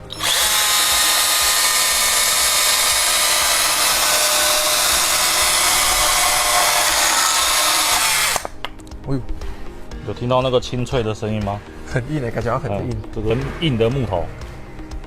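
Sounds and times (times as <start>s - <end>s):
chainsaw cutting through wood: 0.0s - 8.6s.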